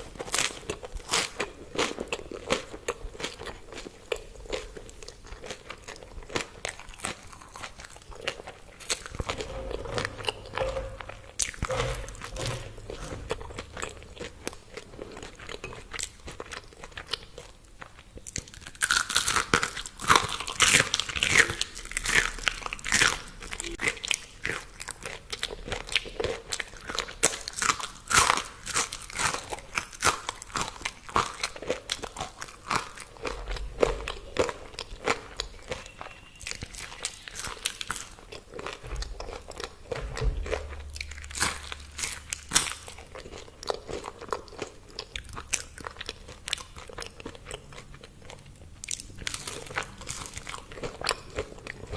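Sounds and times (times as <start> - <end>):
person crunching crispy food: 13.2 - 39.8, 40.6 - 51.9.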